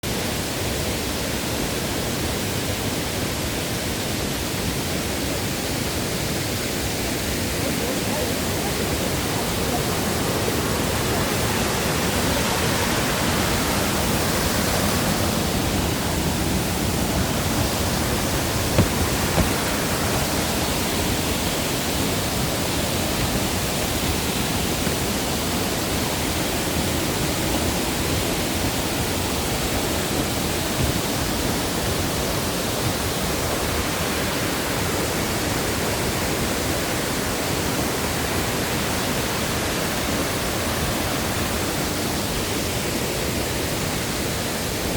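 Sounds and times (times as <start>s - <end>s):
mountain stream rushing: 0.0s - 44.9s
brief knocks: 18.7s - 19.8s.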